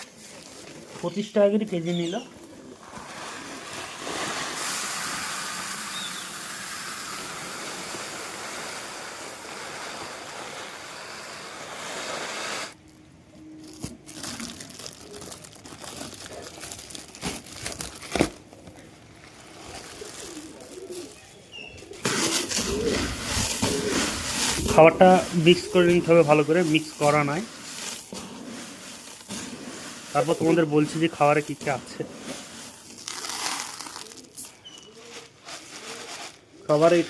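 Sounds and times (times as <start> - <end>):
dry grain pouring: 2.8 - 12.8, 19.4 - 21.2, 22.0 - 37.0
grain rustling and clicking: 22.0 - 37.0.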